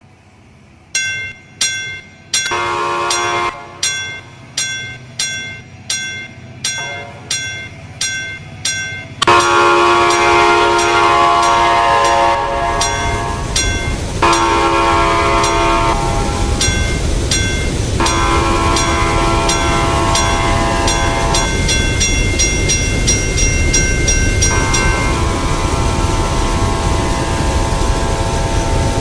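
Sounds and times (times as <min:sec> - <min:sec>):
low rumble of train: 0:00.0 - 0:29.0
bell ringing: 0:01.0 - 0:14.6, 0:15.4 - 0:25.4
train horn blasts: 0:02.4 - 0:04.6, 0:06.8 - 0:07.6, 0:09.0 - 0:17.1, 0:18.0 - 0:22.2, 0:23.7 - 0:29.0.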